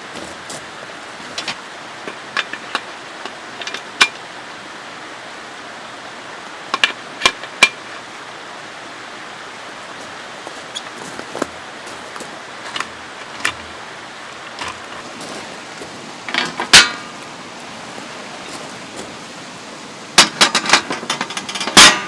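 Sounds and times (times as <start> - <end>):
running water: 0.0 - 22.0
sharp clicks and knocks: 20.2 - 22.0.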